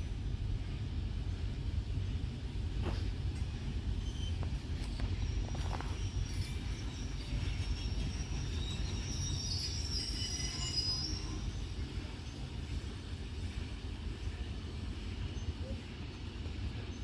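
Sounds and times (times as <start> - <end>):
freight train rumbling past: 0.0 - 17.0
high wheel squeal: 4.0 - 11.6.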